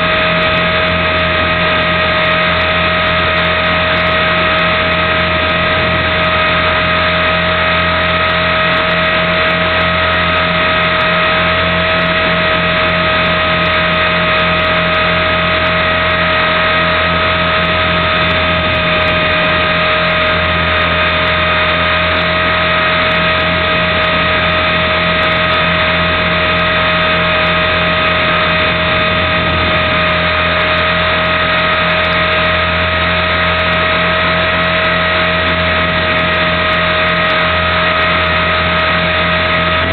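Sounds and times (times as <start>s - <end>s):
helicopter rotor noise: 0.0s - 39.9s.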